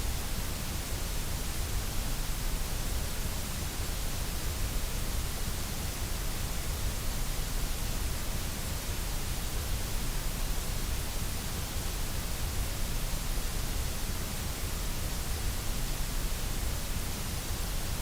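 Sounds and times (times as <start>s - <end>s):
steady white noise hiss: 0.0s - 18.0s.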